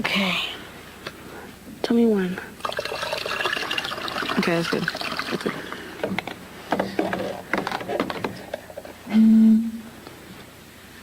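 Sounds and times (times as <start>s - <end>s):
low hooting bottle note: 9.1s - 9.9s.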